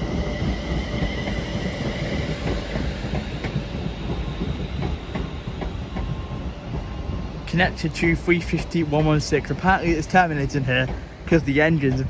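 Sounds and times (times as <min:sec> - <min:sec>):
electric train rumbling: 0:00.0 - 0:12.0
wheels clicking over rail joints: 0:00.0 - 0:12.0.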